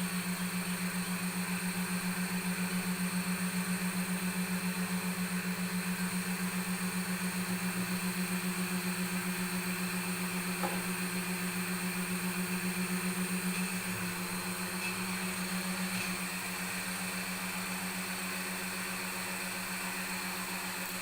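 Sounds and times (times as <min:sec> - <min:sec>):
sewing machine motors humming: 0:10.6 - 0:21.0.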